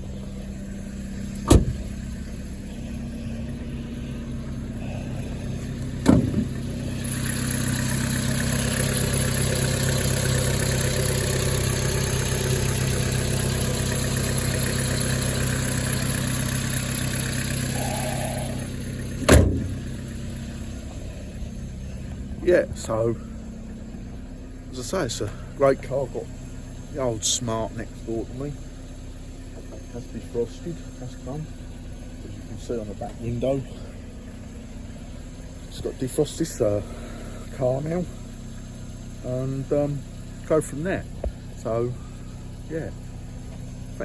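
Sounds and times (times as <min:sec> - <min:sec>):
car engine idling: 0:00.0 - 0:44.0
sharp knocks: 0:01.4 - 0:01.9, 0:06.0 - 0:06.6.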